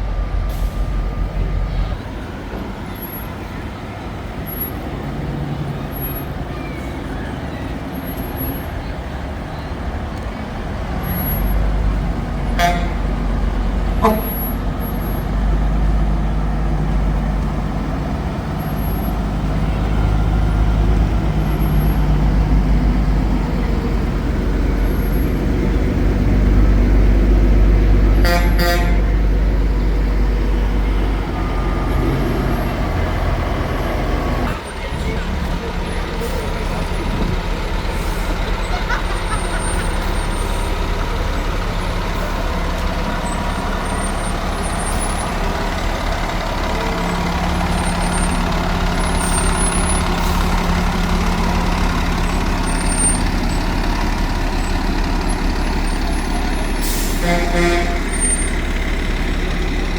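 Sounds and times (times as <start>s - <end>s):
diesel engine rumbling: 0.0s - 59.9s
pulsing horn blast: 12.4s - 14.6s, 28.1s - 29.4s, 56.8s - 58.4s
fire truck horn toots: 12.4s - 15.2s, 28.0s - 29.4s, 55.9s - 58.5s.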